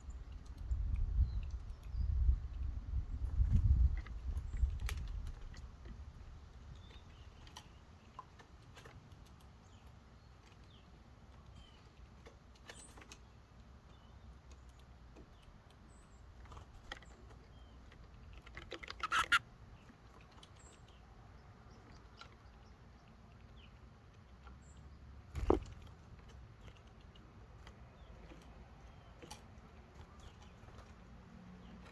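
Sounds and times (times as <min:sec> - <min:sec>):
birds pecking on wood: 0:03.2 - 0:31.9
faint high bird chirps: 0:19.0 - 0:19.4.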